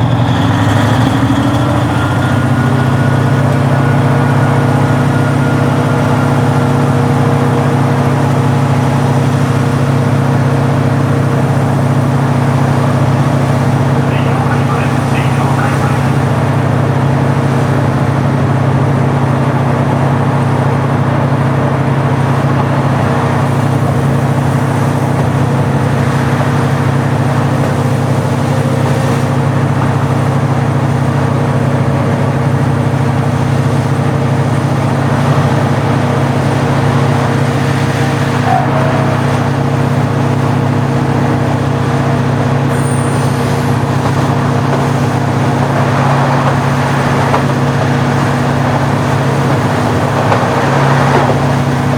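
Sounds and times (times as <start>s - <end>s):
diesel railcar engine droning: 0.0s - 51.9s.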